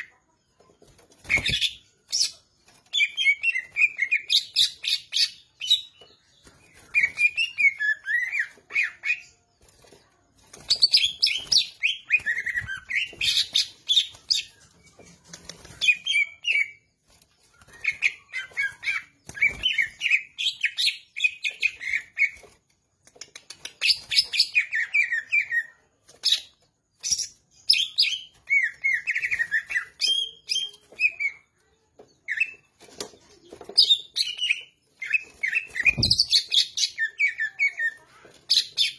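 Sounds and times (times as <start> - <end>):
bird singing chirps and whistles: 1.2 - 9.3, 10.6 - 15.0, 23.8 - 31.4, 33.8 - 38.9.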